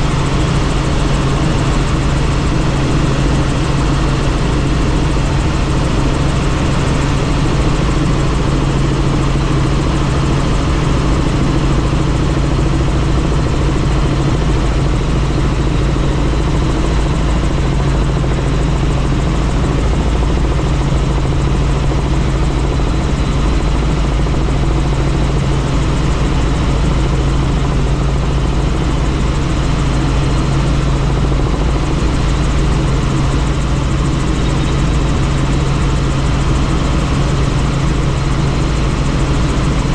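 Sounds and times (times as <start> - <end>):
constant rushing noise: 0.0 - 39.9
helicopter rotor and engine drone: 0.0 - 39.9.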